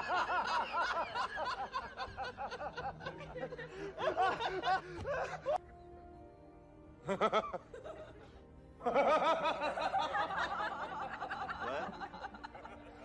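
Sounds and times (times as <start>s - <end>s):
person laughing: 0.3s - 5.6s.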